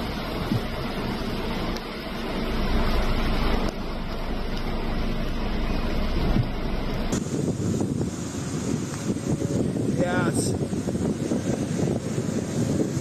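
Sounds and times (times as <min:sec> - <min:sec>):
wind rumbling on microphone: 0:00.0 - 0:04.2, 0:05.9 - 0:13.0
heavy rain: 0:07.2 - 0:13.0.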